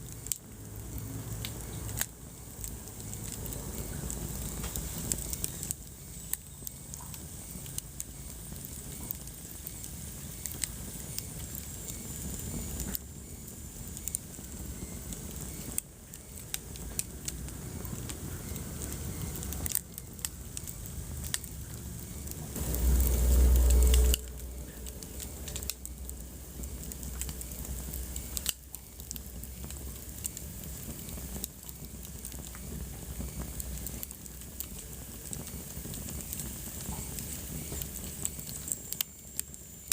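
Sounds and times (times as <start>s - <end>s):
wood fire crackling: 0.0s - 39.9s
low rumble: 16.5s - 35.4s.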